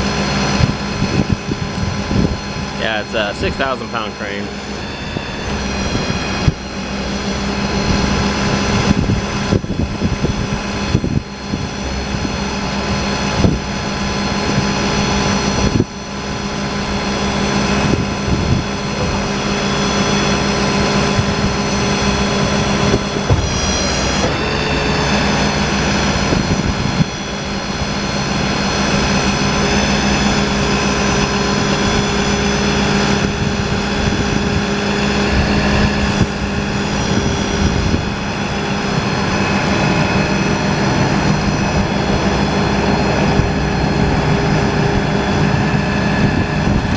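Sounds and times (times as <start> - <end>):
truck engine running: 0.0 - 37.7, 42.1 - 46.9
crane pumps whining: 0.0 - 46.9.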